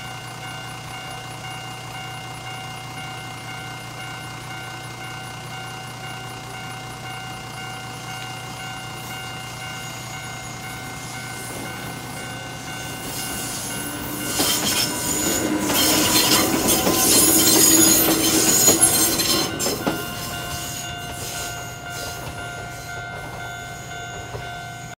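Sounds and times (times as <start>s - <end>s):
level-crossing alarm ringing: 0.0s - 25.0s
train wheels clattering and squealing: 7.1s - 25.0s.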